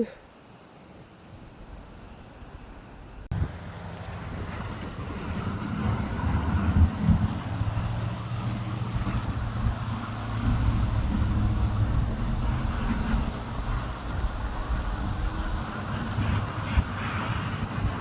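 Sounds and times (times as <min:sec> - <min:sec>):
diesel locomotive engine humming: 0:03.0 - 0:18.0.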